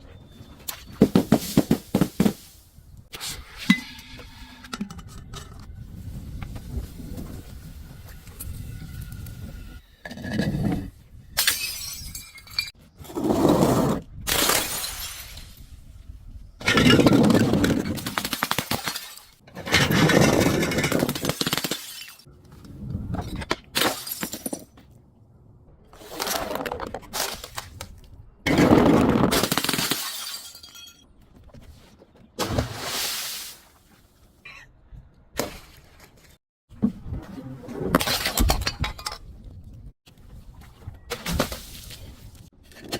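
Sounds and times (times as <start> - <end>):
glass bottles smashing: 11.4 - 12.7, 23.8 - 24.7, 29.3 - 31.0.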